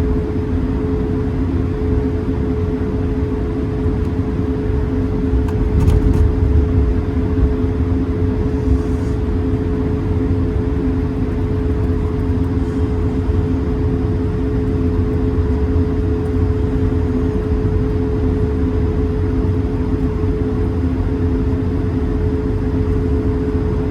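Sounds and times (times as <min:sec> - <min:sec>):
aircraft cabin low rumble: 0:00.0 - 0:23.9
engine hum tones: 0:03.6 - 0:20.9.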